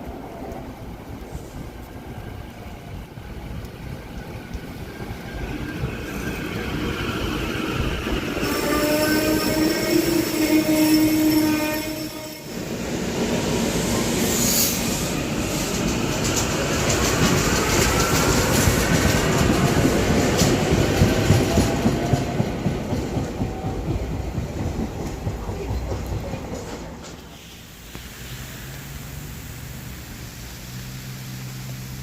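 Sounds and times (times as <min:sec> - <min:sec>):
train horn chord: 0:08.4 - 0:12.6.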